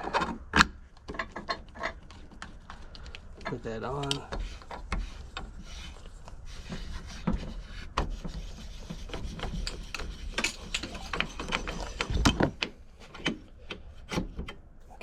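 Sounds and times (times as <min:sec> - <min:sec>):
metal parts clicking and knocking: 0:09.5 - 0:13.8.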